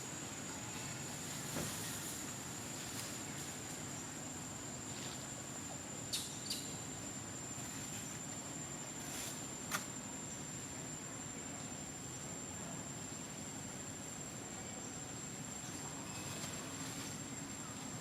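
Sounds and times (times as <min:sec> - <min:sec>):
high-pitched insect drone: 0:15.2 - 0:18.0.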